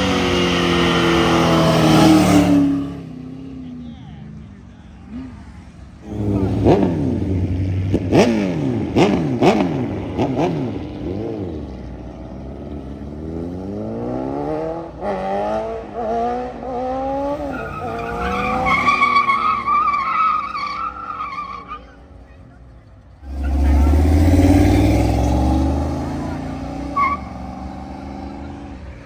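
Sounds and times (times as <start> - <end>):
car engine revving and accelerating: 0.0 - 3.4, 6.0 - 21.8, 23.2 - 29.0
tires squealing: 17.1 - 28.7.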